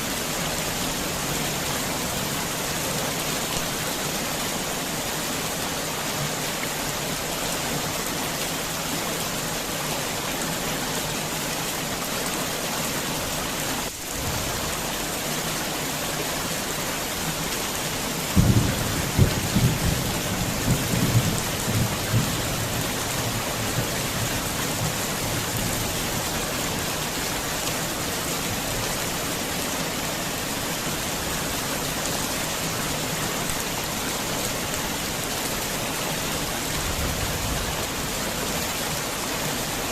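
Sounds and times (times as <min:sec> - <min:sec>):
heavy rain falling: 0:00.0 - 0:39.9
thunder rumbling: 0:18.4 - 0:23.9.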